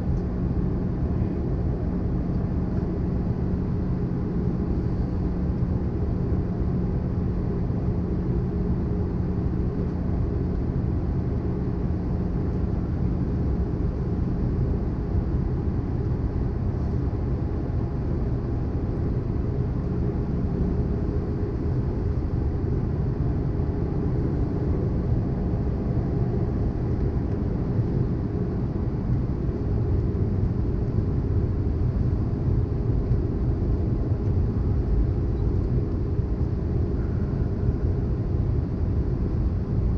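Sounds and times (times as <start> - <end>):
faint steady hum: 0.0 - 39.9
airliner cabin noise: 12.4 - 39.9.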